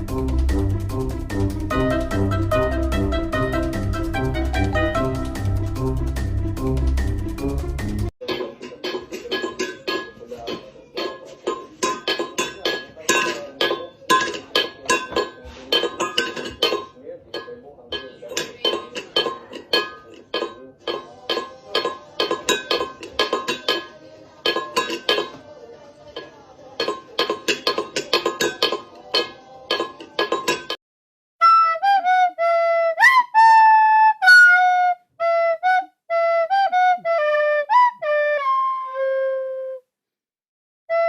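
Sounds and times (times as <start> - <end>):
flute-like melody: 0.0 - 6.8, 31.4 - 39.9
clinking tapping hits: 8.2 - 25.4, 26.2 - 30.8.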